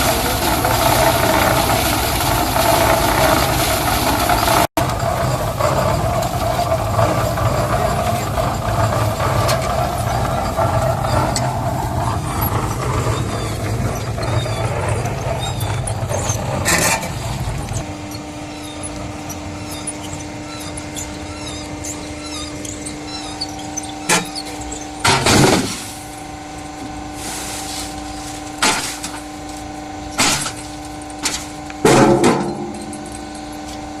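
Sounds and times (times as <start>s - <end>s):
concrete mixer engine running: 0.0s - 34.0s
sharp metal clanks: 30.1s - 33.8s.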